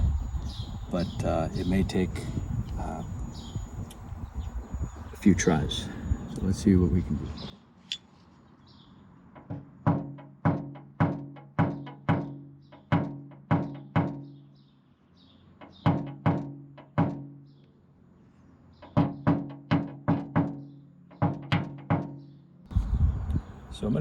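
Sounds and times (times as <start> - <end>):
hammer tapping on sheet metal: 9.4 - 14.3.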